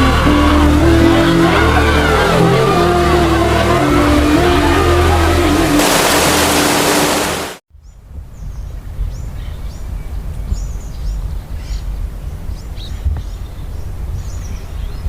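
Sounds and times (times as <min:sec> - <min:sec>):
loud rushing noise: 0:05.7 - 0:07.6.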